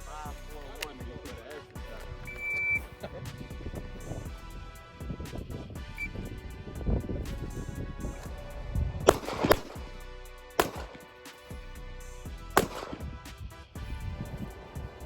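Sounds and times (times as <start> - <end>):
background music: 0.0 - 15.0
gunshots: 9.1 - 9.9, 10.6 - 11.6, 12.6 - 13.5.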